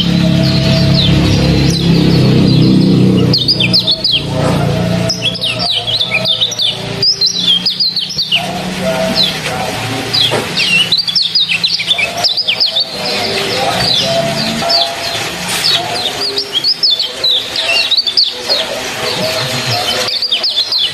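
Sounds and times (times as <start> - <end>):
low droning tone: 0.0 - 16.7
bird chirping: 0.0 - 20.9.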